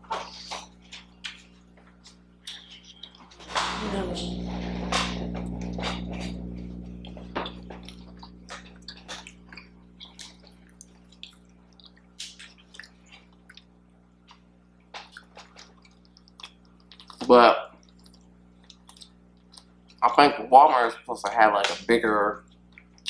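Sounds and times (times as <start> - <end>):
faint steady hum: 0.0 - 23.0
wet mouth chewing clicks: 7.0 - 13.7, 15.0 - 20.0.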